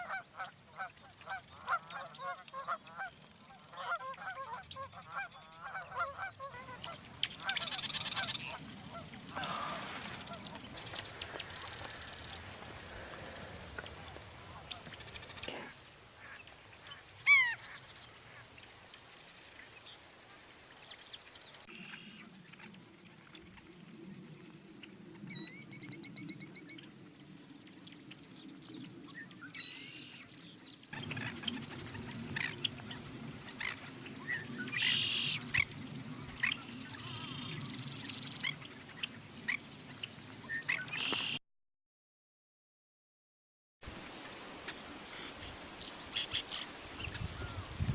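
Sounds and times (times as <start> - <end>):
marsh birds calling: 0.0 - 18.5
fast bird chirps: 7.2 - 12.4, 25.3 - 26.8.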